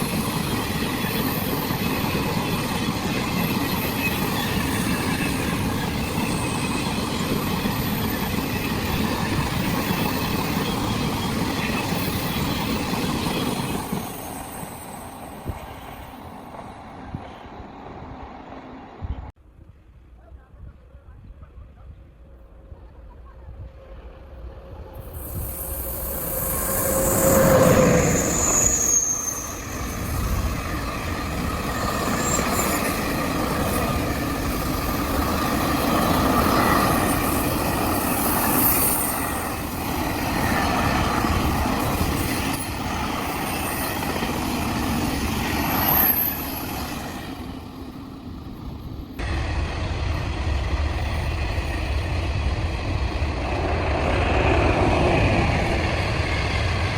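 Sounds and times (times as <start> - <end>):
train wheels squealing: 0.0 - 17.6, 23.2 - 47.9
train rumbling and clattering: 0.0 - 56.9.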